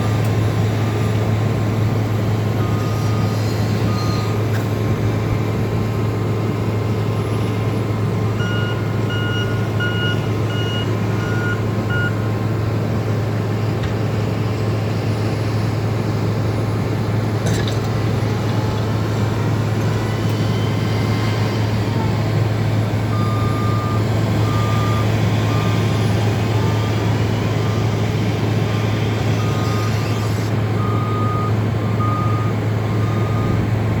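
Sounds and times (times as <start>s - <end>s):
diesel engines under load: 0.0s - 34.0s
back-up alarms beeping: 8.4s - 12.3s, 23.1s - 28.1s, 28.8s - 33.6s.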